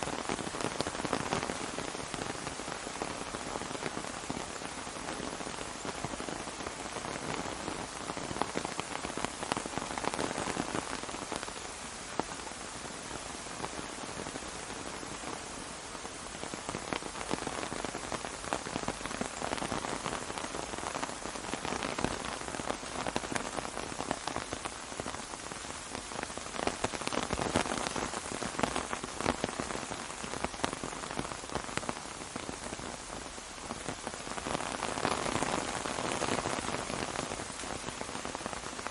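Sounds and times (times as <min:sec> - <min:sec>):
rain pattering on umbrella: 0:00.0 - 0:38.9.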